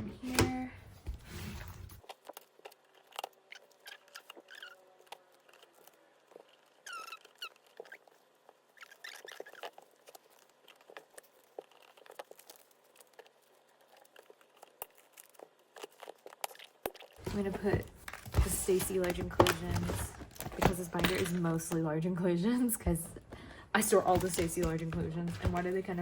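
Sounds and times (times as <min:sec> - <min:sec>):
plastic squeaking on plastic: 0:01.2 - 0:21.4.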